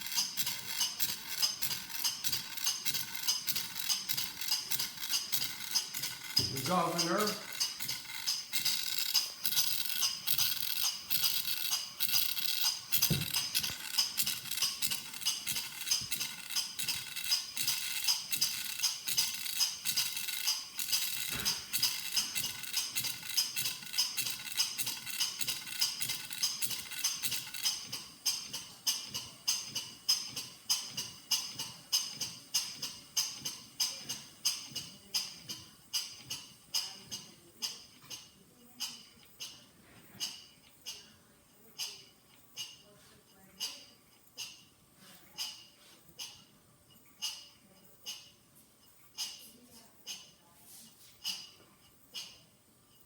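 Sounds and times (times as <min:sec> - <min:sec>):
model beam engine running: 0:00.0 - 0:27.8
rhythmic metallic ticking: 0:00.0 - 0:53.0.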